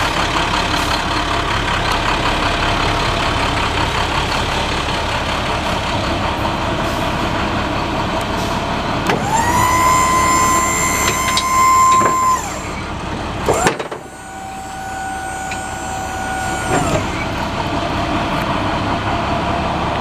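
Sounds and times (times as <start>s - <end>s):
truck diesel engine running: 0.0s - 20.0s
high-pitched rising tone: 9.2s - 12.9s.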